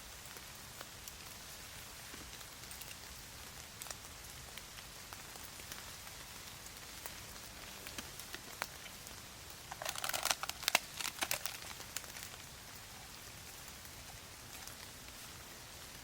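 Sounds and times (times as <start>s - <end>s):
steady rain falling: 0.0s - 16.0s
packet crinkling: 9.6s - 12.5s.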